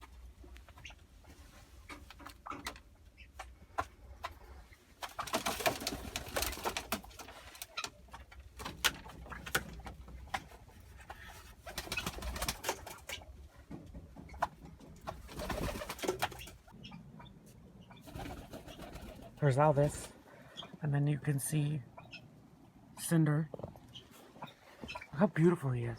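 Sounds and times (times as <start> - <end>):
pigeons cooing: 14.4 - 20.8.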